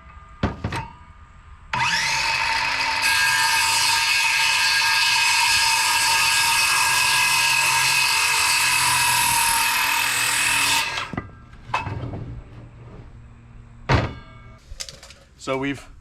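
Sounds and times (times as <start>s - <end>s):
power saw cutting board: 1.8s - 11.2s
wooden knocks and clatter: 11.1s - 12.7s, 13.9s - 15.2s.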